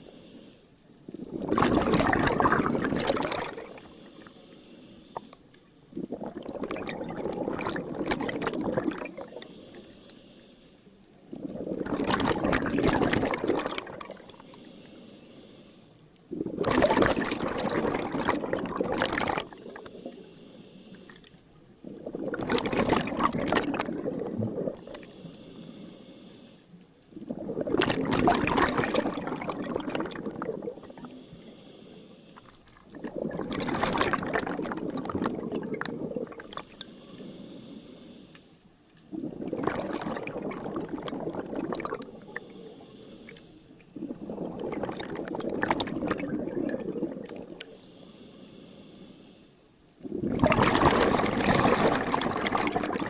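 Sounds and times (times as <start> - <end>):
regulator inhalation hiss: 0.0 - 0.8, 3.6 - 5.4, 9.2 - 11.2, 14.1 - 16.1, 19.5 - 21.5, 24.8 - 26.8, 30.6 - 32.7, 36.5 - 38.7, 42.0 - 44.0, 47.7 - 49.8
exhaled bubbles underwater: 0.8 - 4.4, 5.1 - 10.0, 11.0 - 14.6, 16.3 - 20.4, 21.1 - 25.8, 26.7 - 37.8, 38.8 - 47.8, 50.0 - 53.0.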